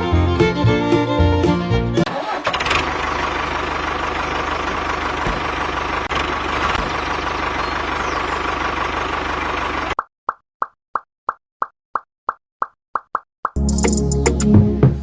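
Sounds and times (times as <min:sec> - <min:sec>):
small engine running: 0:02.1 - 0:10.0.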